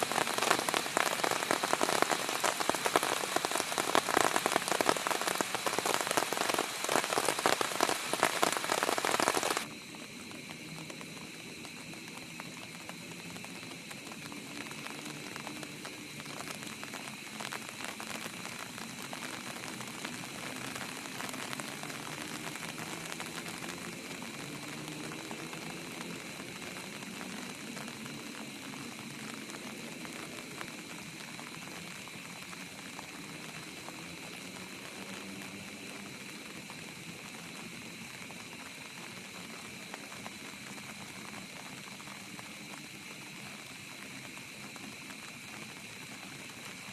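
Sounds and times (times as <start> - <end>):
heavy rain pattering: 0.0 - 46.9
soft steady hiss: 0.0 - 46.9.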